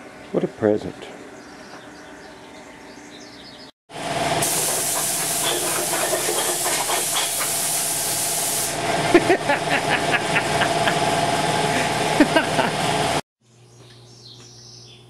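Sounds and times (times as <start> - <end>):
engine running: 1.5 - 13.2
loud hiss: 4.4 - 8.8.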